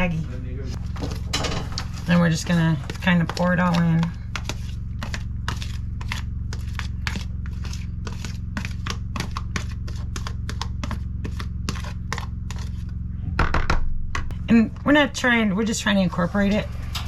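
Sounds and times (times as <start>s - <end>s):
steady low hum: 0.0s - 17.0s
utensil stirring in a bowl: 0.8s - 12.9s.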